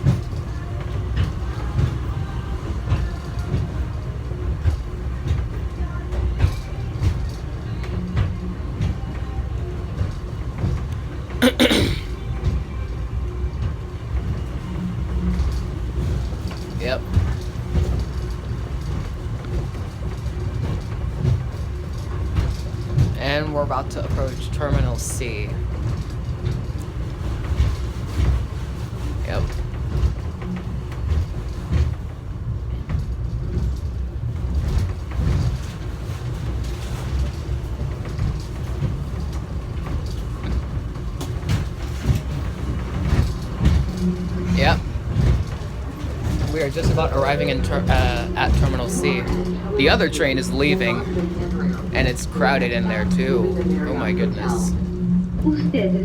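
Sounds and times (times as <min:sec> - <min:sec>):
faint rattles and clicks: 0:00.0 - 0:55.4
subway train rumble: 0:00.0 - 0:56.0
person's voice: 0:11.4 - 0:12.1, 0:46.4 - 0:54.8.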